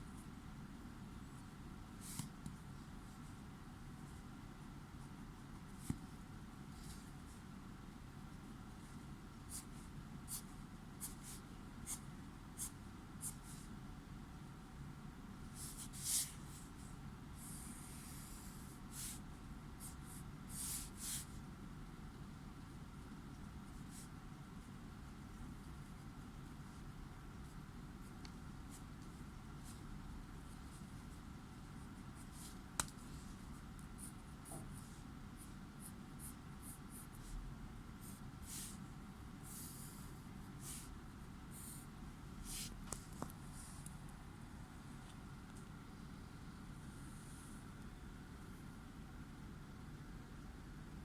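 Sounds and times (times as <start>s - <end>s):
pencil strokes on paper: 8.3s - 13.8s, 15.5s - 21.4s, 23.3s - 43.9s.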